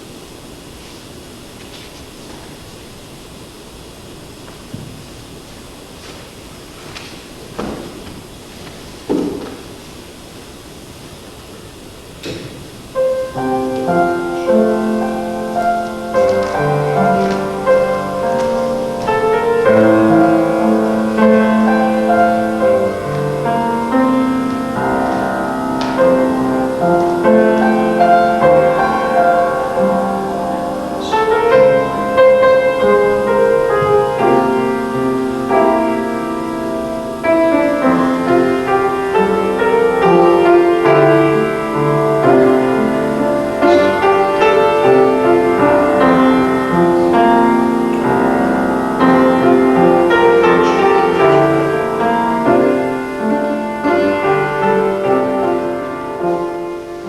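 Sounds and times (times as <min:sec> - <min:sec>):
solo piano playing: 0:11.6 - 0:57.0.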